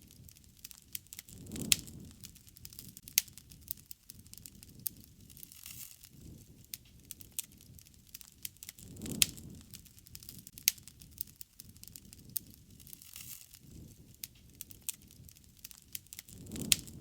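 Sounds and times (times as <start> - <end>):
low fire rumble: 0.0 - 17.0
wood fire crackling and popping: 0.0 - 17.0.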